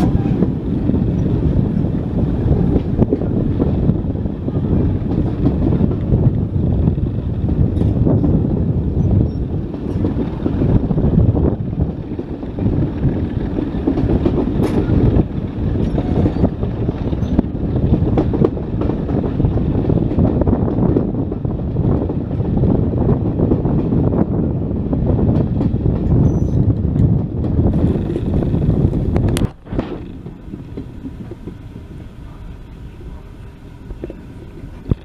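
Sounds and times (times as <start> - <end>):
train rumbling on track: 0.0 - 35.0
wheels clicking over rails: 9.0 - 24.2, 25.3 - 35.0.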